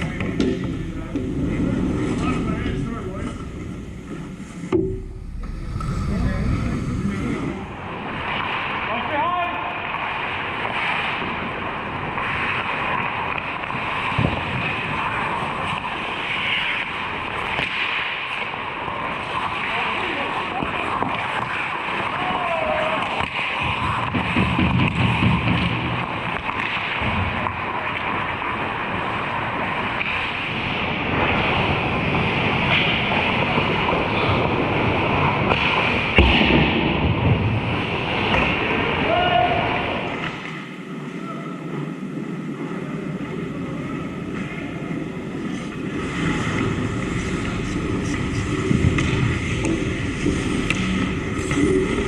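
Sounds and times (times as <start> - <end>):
skates and hockey play noise: 0.0 - 4.9, 5.8 - 52.0
sharp knock: 4.7 - 5.6.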